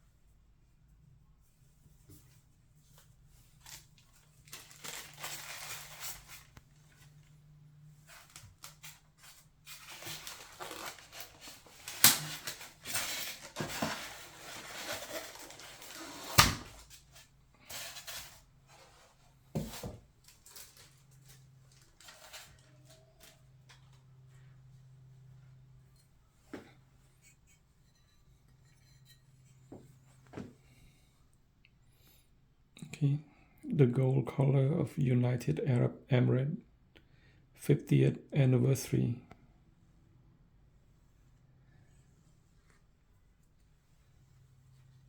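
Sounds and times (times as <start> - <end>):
packaging rustling and scraping: 3.5 - 7.3, 8.0 - 23.9.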